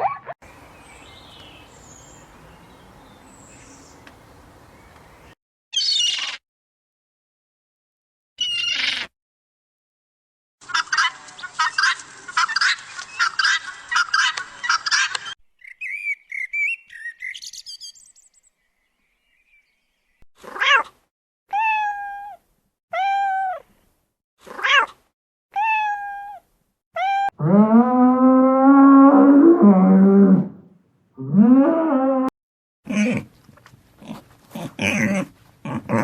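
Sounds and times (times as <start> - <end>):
birds chirping and twittering: 0.4 - 6.2, 10.7 - 20.2
cat meowing: 25.6 - 26.4.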